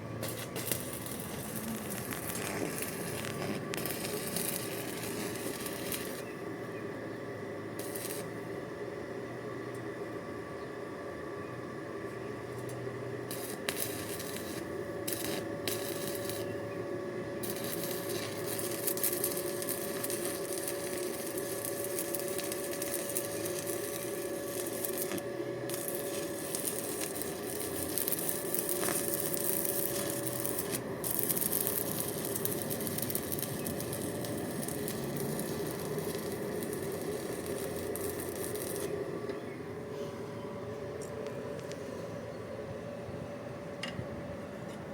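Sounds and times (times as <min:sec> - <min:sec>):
welding arc crackling: 0:00.0 - 0:06.4, 0:07.6 - 0:08.5, 0:12.6 - 0:39.1
steady hum: 0:00.0 - 0:44.9.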